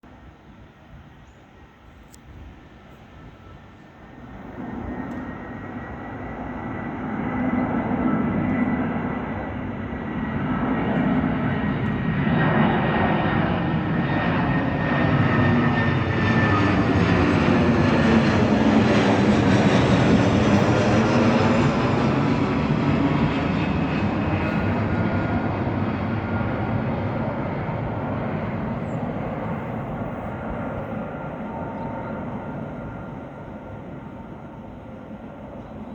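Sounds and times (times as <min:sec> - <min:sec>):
jet airliner passing overhead: 0:00.1 - 0:35.9.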